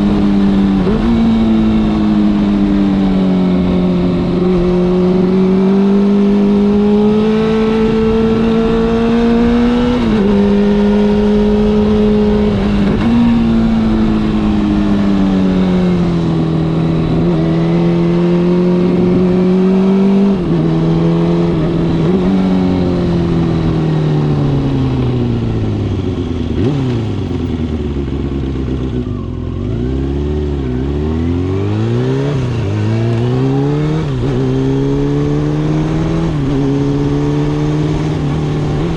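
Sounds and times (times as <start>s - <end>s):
motorcycle engine changing gears: 0.0s - 38.9s.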